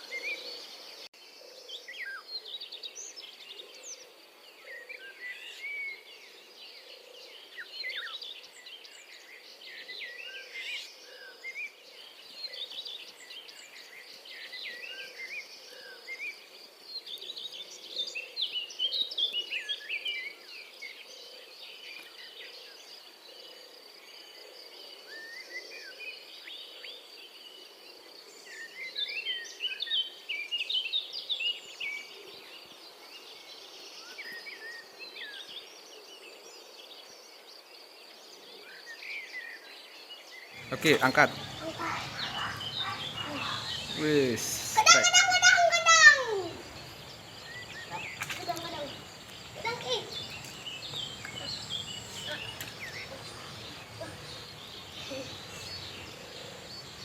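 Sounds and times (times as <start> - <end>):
birds chirping: 38.7 - 57.0
high insect drone: 40.6 - 57.0.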